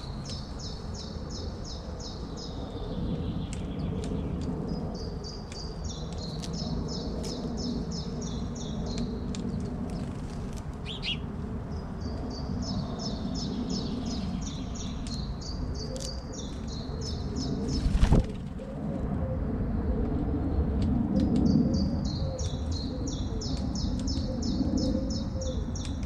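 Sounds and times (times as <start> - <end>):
songbird singing: 0.0 - 19.4, 20.5 - 26.0
loud rustling thump: 17.8 - 18.5.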